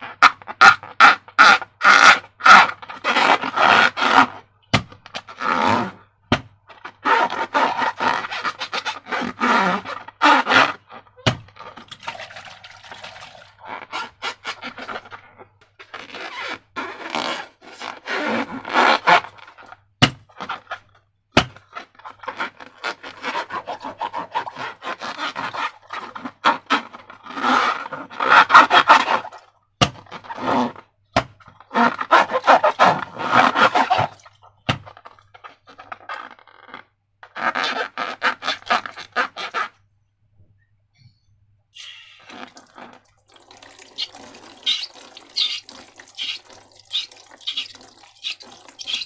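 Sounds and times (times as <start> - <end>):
sticky slime squishes: 42.2 - 49.0.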